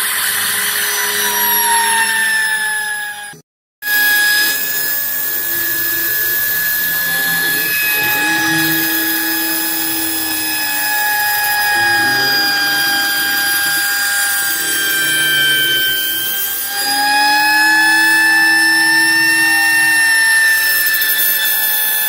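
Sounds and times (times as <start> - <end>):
machine motor whine: 0.0 - 22.0
low shifting machine tone: 3.3 - 20.7.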